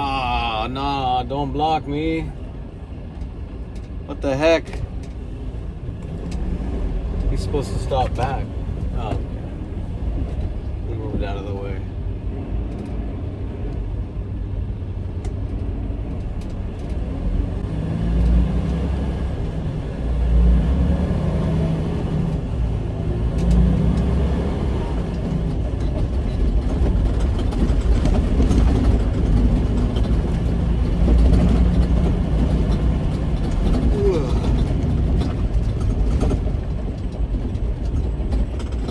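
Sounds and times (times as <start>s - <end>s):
truck engine surging: 16.2s - 38.9s.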